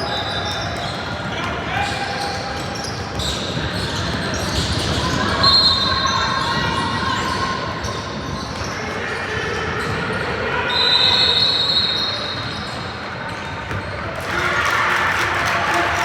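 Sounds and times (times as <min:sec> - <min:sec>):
crowd noise in echoing hall: 0:00.0 - 0:16.0
basketball bouncing on court: 0:13.6 - 0:13.9.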